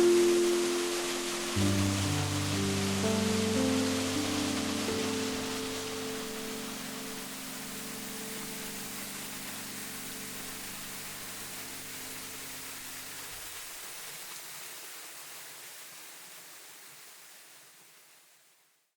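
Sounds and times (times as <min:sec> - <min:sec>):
background music held notes: 0:00.0 - 0:13.2
waterfall rushing: 0:00.0 - 0:16.4.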